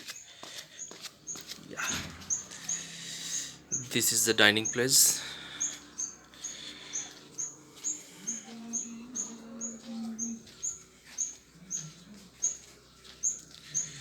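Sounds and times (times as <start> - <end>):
small bird chirping: 0.0 - 14.0.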